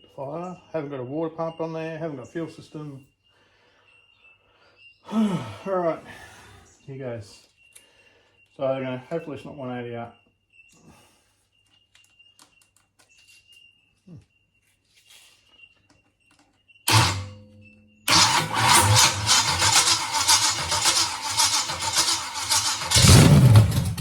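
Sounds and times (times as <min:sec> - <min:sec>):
car engine starting and running rough: 0:16.9 - 0:17.4, 0:18.1 - 0:24.0.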